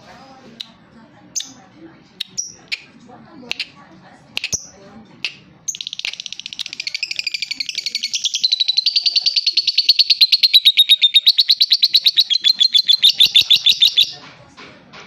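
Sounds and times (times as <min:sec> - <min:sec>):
lovebird chirping rapidly: 0:05.7 - 0:14.2.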